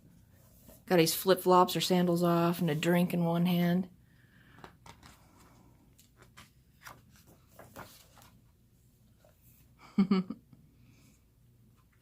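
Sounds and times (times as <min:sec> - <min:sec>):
paper rustles and taps: 0:04.6 - 0:05.2, 0:06.0 - 0:08.4
book pages turning: 0:04.6 - 0:08.5.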